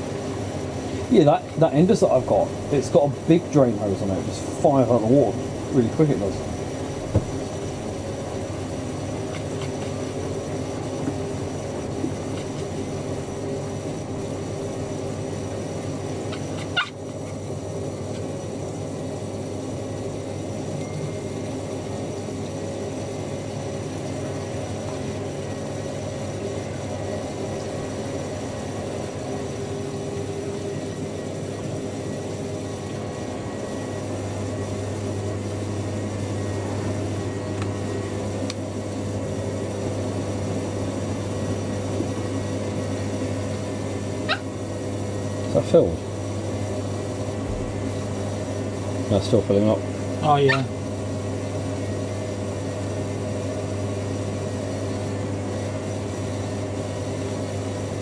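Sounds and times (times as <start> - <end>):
washing machines humming: 0.0 - 58.0
short sharp squawk: 16.3 - 17.0, 44.3 - 44.5, 50.4 - 50.7.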